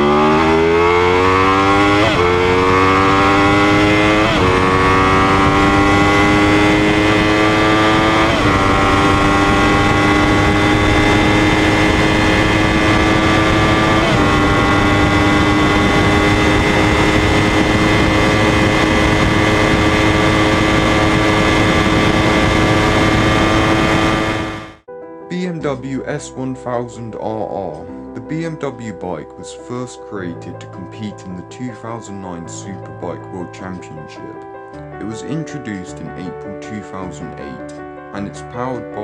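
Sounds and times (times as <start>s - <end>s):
motorcycle accelerating hard: 0.0s - 24.9s.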